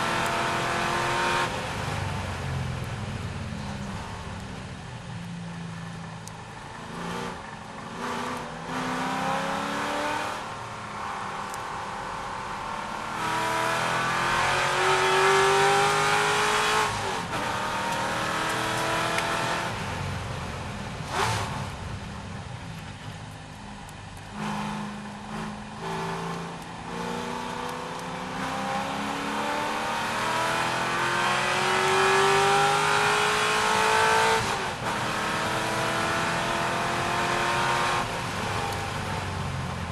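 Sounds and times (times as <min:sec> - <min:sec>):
car engine racing: 0:00.0 - 0:39.9.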